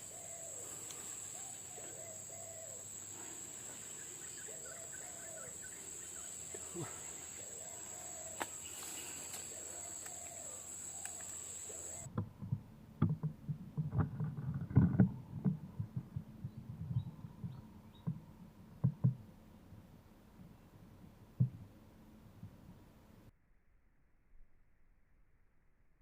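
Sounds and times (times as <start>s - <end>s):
dove cooing: 0.0s - 12.1s
high insect drone: 0.0s - 12.1s.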